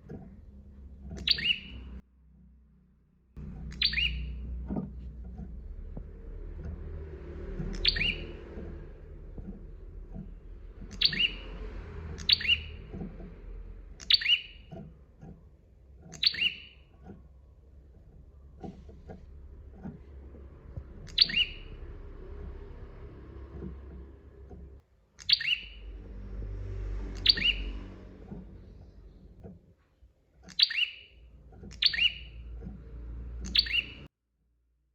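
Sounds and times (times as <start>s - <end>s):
low background rumble: 0.0s - 34.1s
songbird high chirps: 1.1s - 2.0s, 3.4s - 5.6s, 7.6s - 14.9s, 16.0s - 17.2s, 20.6s - 24.6s, 25.2s - 26.2s, 27.0s - 29.3s, 30.5s - 34.1s.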